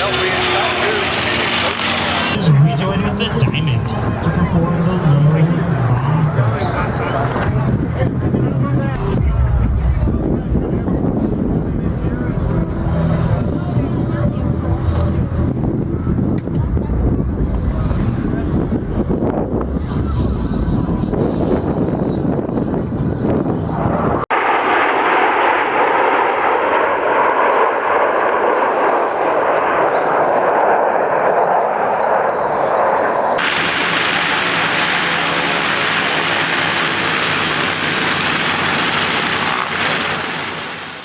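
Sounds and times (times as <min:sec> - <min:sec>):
aircraft engine droning: 0:00.0 - 0:41.0
even rushing noise: 0:33.4 - 0:41.0.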